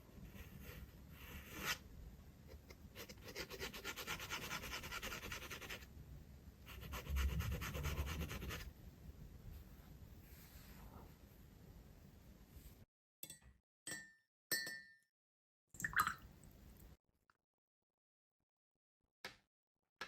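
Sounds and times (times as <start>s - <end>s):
dip pen scratching on paper: 0.3s - 1.8s.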